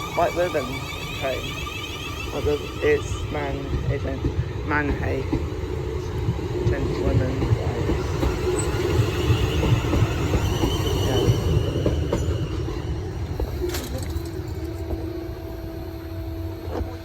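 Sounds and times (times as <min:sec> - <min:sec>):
faint high squeal: 0:00.0 - 0:03.5
train wheels rumbling: 0:00.0 - 0:17.0.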